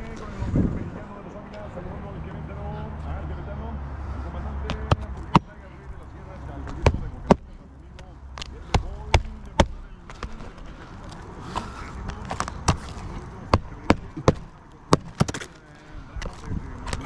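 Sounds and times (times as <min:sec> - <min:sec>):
hand tools knocking on roof shingles: 0:04.7 - 0:05.5, 0:06.7 - 0:07.5, 0:08.4 - 0:10.4, 0:12.1 - 0:15.6.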